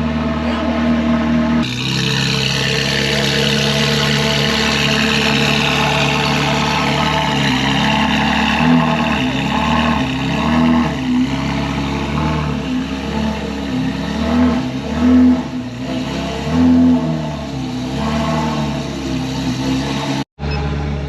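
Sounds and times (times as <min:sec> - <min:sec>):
sports car engine idling: 0:00.0 - 0:15.8
engine throttle blips: 0:00.0 - 0:21.0.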